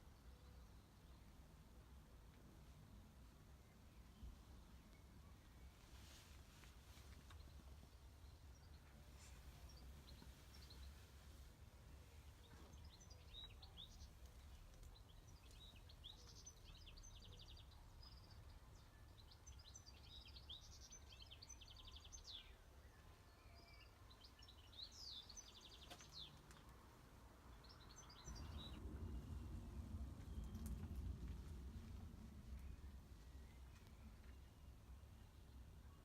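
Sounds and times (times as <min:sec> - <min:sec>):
small birds chirping and trilling: 0:07.2 - 0:36.0
low background rumble: 0:27.0 - 0:36.0.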